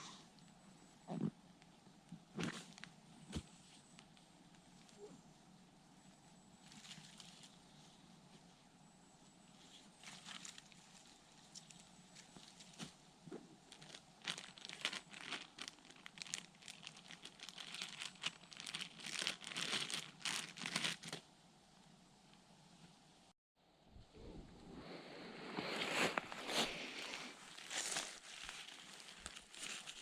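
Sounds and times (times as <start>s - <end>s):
crunching through dead leaves: 6.6s - 8.2s, 9.6s - 13.0s, 13.6s - 21.2s, 25.4s - 30.0s.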